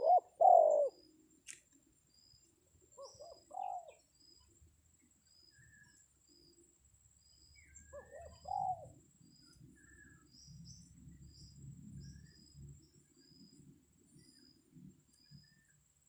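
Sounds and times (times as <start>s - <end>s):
dove cooing: 0.0s - 1.0s, 3.0s - 4.0s, 7.9s - 9.0s
small birds chirping: 0.0s - 15.9s.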